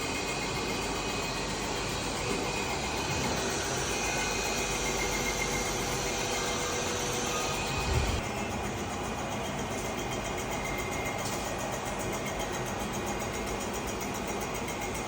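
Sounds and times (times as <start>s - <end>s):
machinery whirring: 0.4s - 11.3s.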